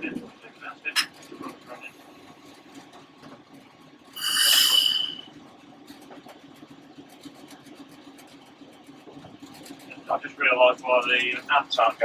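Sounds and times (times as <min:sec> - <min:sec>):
loud high hissing blast: 0:04.2 - 0:05.3.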